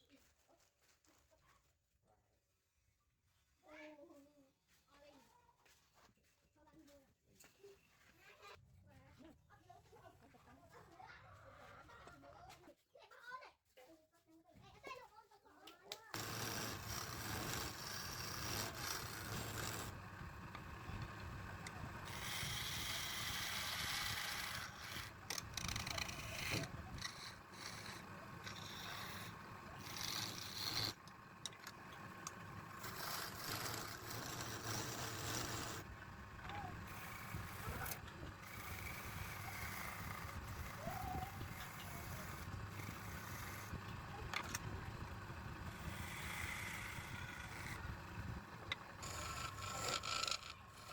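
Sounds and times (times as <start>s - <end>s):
tool scraping spinning wood: 16.1s - 50.9s
lathe motor hum: 16.2s - 50.9s.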